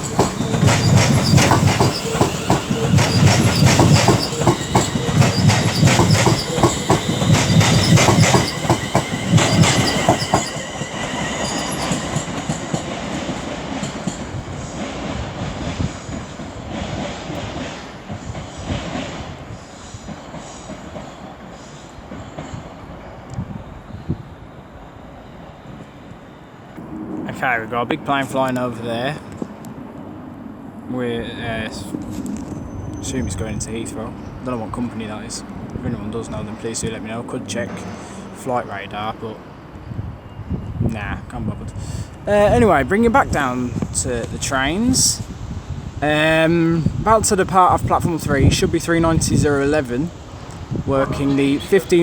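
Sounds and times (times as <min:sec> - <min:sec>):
high-pitched wheel squeal: 0:00.0 - 0:12.9
train wheels clicking over rail joints: 0:00.0 - 0:19.3.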